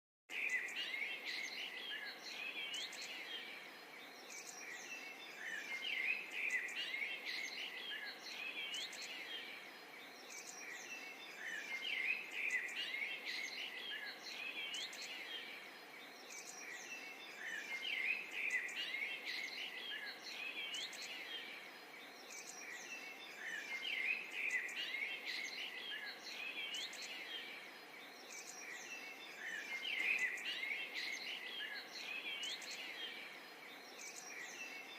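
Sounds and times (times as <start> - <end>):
small birds chirping chorus: 0.3 - 34.9.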